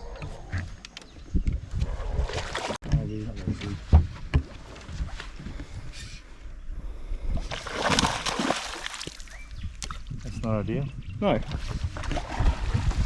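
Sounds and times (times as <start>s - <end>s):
water splash: 7.5s - 9.4s.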